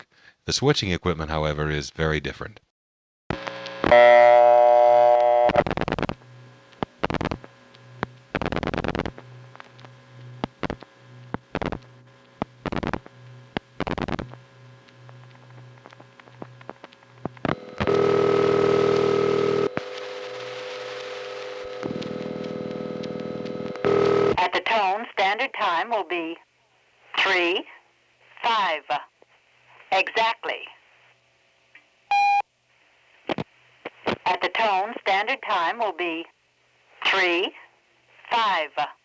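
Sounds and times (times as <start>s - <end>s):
steady line tone: 3.3s - 24.4s
buzzy dial tone: 3.3s - 24.7s, 32.1s - 32.4s
loud telephone tone: 3.8s - 6.1s, 17.5s - 24.4s, 32.1s - 32.4s.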